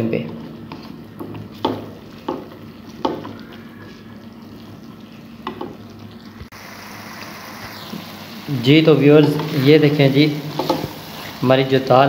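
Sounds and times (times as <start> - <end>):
lentils sizzling in oil: 0.5 - 12.0
spatula scraping and clicking on pan: 0.7 - 3.4, 10.5 - 11.3.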